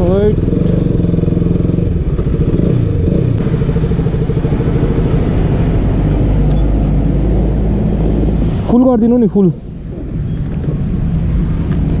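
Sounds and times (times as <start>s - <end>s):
motorcycle engine idling: 0.0s - 5.9s.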